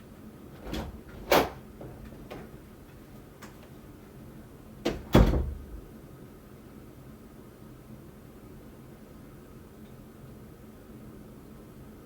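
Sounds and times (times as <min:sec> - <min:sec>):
door closing with thud: 0:04.8 - 0:05.8.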